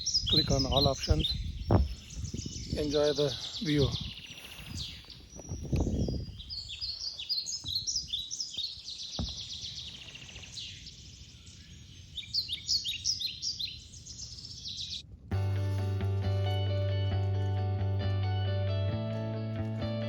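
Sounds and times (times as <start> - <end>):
songbirds chirping: 0.0 - 15.1
single knock: 1.7 - 2.0, 9.2 - 9.5.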